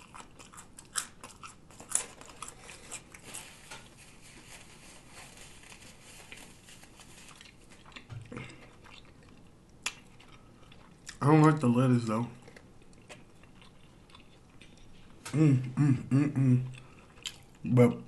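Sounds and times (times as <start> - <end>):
chewing and mouth smacking: 0.0 - 3.3, 7.3 - 11.2, 12.4 - 15.2, 16.7 - 17.7
paper napkin crinkling: 2.1 - 7.8.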